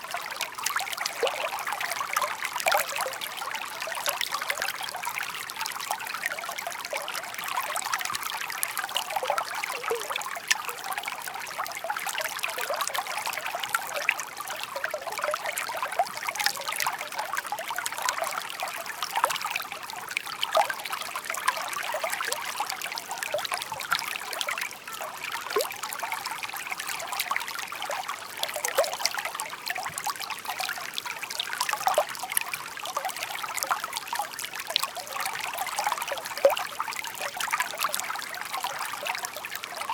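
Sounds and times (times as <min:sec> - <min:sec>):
stream splashing over stones: 0:00.0 - 0:39.9.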